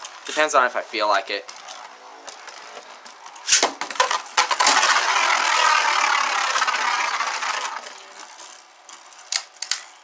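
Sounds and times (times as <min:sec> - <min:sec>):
spinning top launch rip and clatter: 0:03.4 - 0:08.3
spinning tops whirring and rattling: 0:03.4 - 0:08.6.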